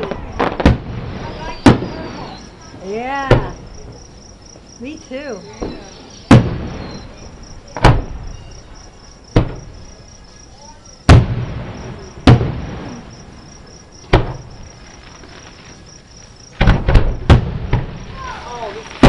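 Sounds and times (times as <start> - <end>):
distant fireworks booms: 0.0 - 19.0
high insect chirping: 1.2 - 19.0.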